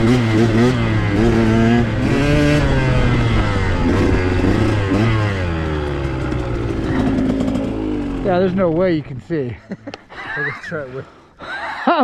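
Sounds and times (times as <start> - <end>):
dirt bike engine revving: 0.0 - 9.8.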